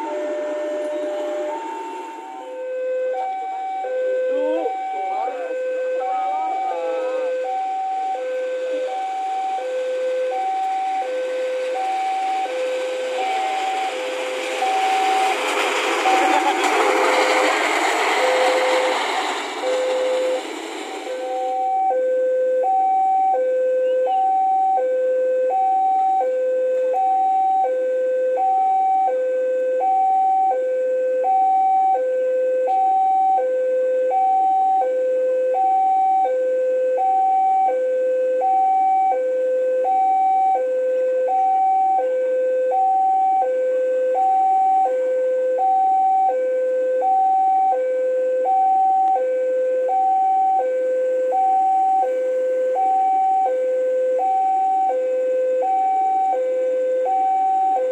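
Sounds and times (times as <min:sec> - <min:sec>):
level crossing alarm tones: 0:00.0 - 0:24.9.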